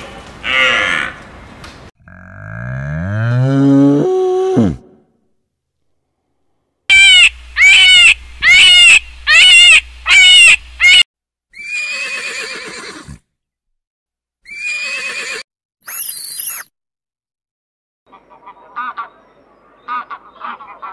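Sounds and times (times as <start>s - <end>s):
animal calling: 6.9s - 11.0s.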